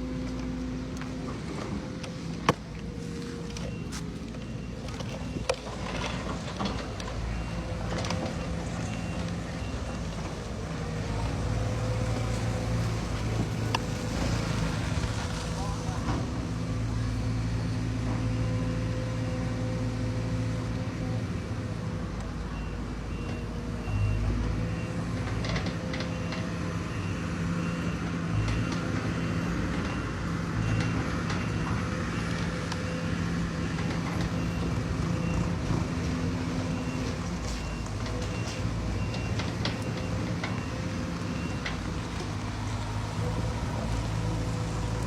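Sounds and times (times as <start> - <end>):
diesel engines running: 0.0 - 45.0.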